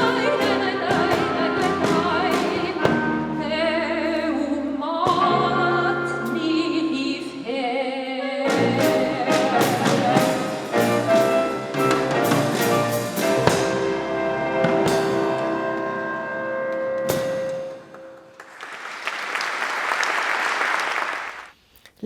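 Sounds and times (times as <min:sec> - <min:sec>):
klezmer ensemble playing: 0:00.0 - 0:07.4, 0:08.3 - 0:18.4.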